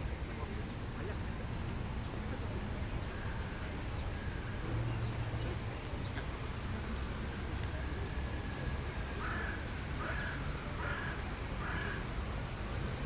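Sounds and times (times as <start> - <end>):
low hum of park ambience: 0.0 - 13.0
crow cawing: 9.2 - 12.0.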